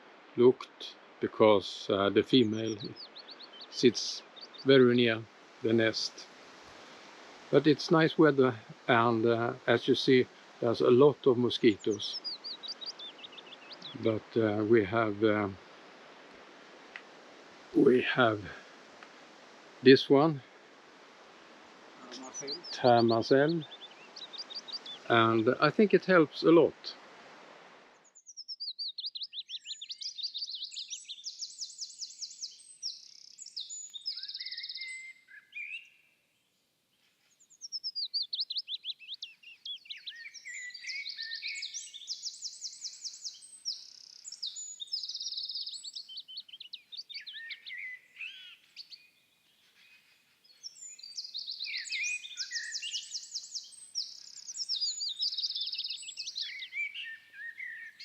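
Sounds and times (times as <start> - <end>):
songbird singing high trills: 1.3 - 5.9, 7.6 - 15.7, 22.0 - 25.4, 28.0 - 36.2, 37.0 - 58.0.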